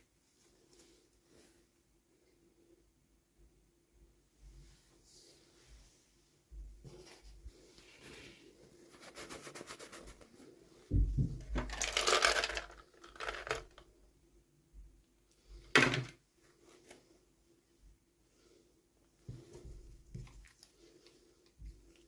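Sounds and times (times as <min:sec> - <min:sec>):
low thump: 0:10.9 - 0:11.5
plastic and paper crinkling: 0:11.6 - 0:13.8.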